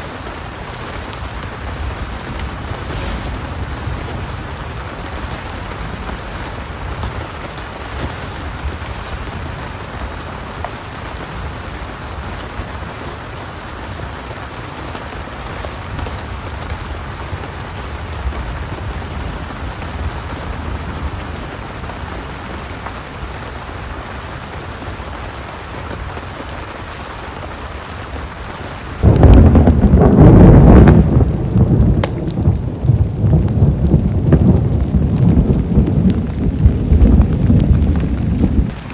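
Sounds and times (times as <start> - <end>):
heavy rain falling: 0.0 - 38.9
loud thunder clap: 28.9 - 38.9
low rumble: 29.0 - 38.9.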